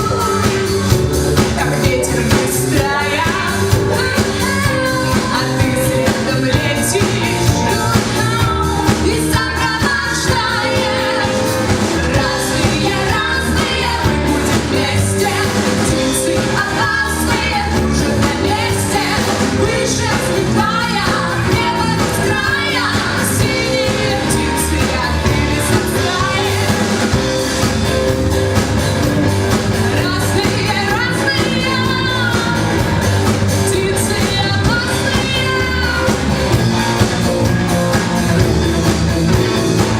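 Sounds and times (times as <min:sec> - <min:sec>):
person singing: 0:00.0 - 0:28.2
pop-rock band playing: 0:00.0 - 0:39.9.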